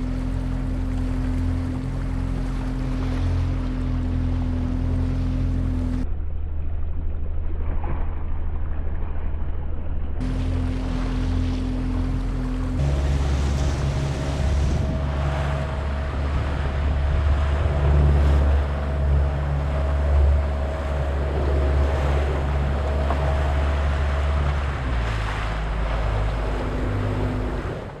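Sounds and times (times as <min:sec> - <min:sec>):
sea water around boat: 0:00.0 - 0:28.0
steady low hum: 0:00.0 - 0:28.0
wind buffeting microphone: 0:10.2 - 0:28.0.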